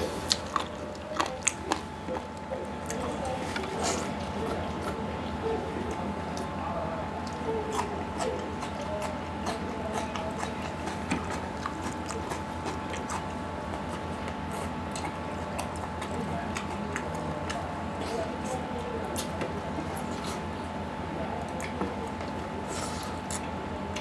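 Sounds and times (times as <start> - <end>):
chewing with wet mouth clicks: 0.0 - 24.0
steady hum: 0.0 - 24.0.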